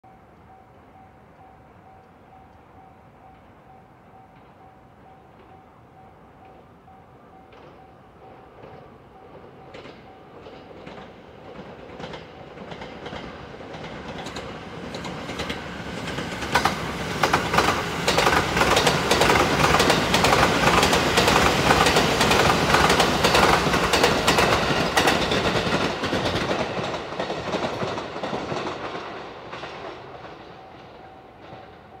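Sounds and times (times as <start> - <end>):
train passing at speed: 0.1 - 32.0
wheels clicking over rail joints: 9.7 - 31.8.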